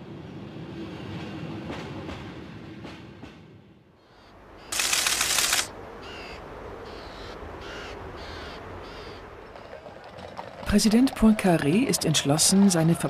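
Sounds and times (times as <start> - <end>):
bird cries: 4.0 - 4.8, 6.0 - 9.8.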